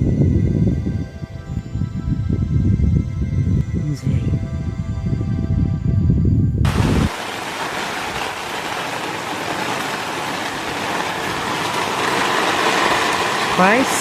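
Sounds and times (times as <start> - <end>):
rain falling: 6.7 - 14.0.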